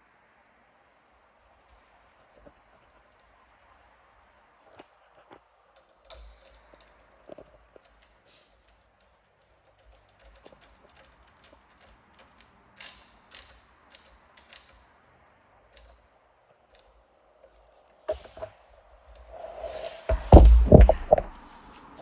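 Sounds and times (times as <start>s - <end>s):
mechanical clicks of tools handled: 5.8s - 14.9s, 15.7s - 16.0s, 16.7s - 17.6s
knocks: 20.1s - 21.4s.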